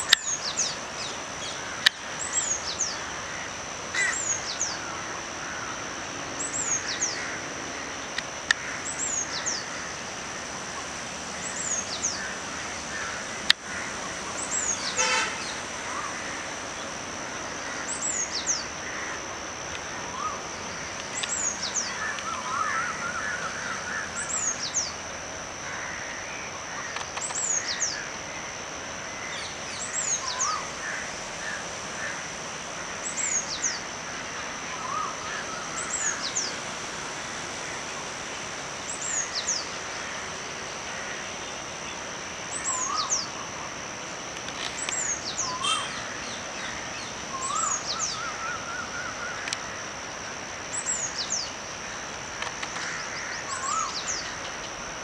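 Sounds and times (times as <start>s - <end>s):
bird short rising calls: 45.4s - 46.2s.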